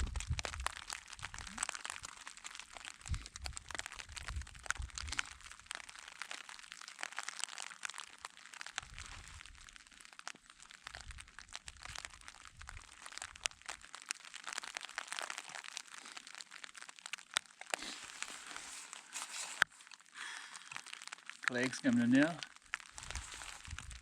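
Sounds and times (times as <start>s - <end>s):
faint low rumble: 0.0s - 1.7s
rain and hail on jacket fabric: 0.0s - 24.0s.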